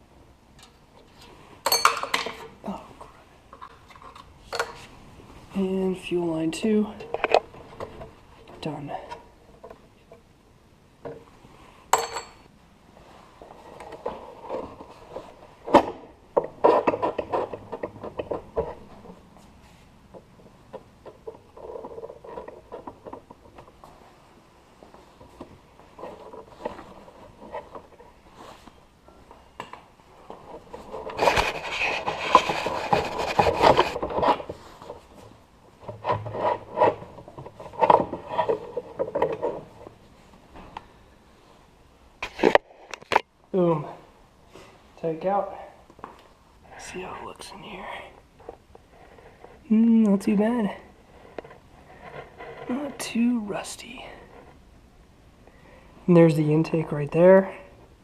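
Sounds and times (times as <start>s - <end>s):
rubbing and scraping of metal parts: 13.4s - 19.9s, 20.7s - 24.1s, 30.1s - 40.2s.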